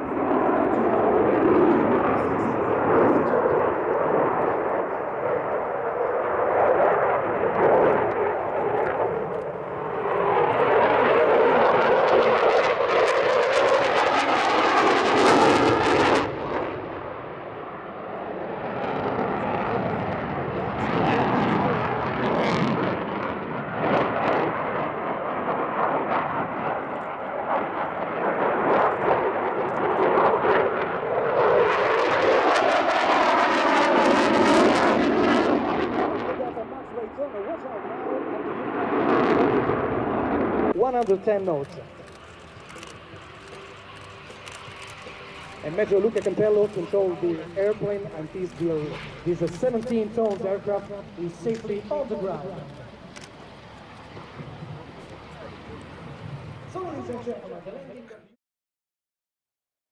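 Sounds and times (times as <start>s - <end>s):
jet engines in flight: 0.0s - 58.1s.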